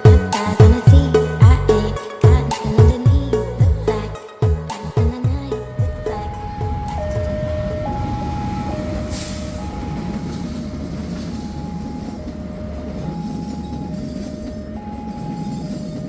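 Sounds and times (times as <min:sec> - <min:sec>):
train rumbling past: 0:05.4 - 0:16.0
two-tone signal: 0:05.8 - 0:16.0
short hiss: 0:09.1 - 0:09.6.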